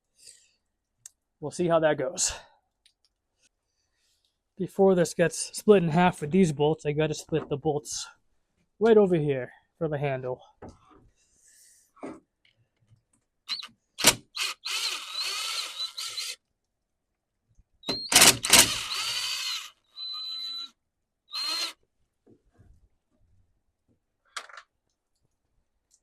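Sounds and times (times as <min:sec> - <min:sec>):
power drill motor: 0:13.5 - 0:16.4, 0:17.9 - 0:20.7, 0:21.3 - 0:21.8.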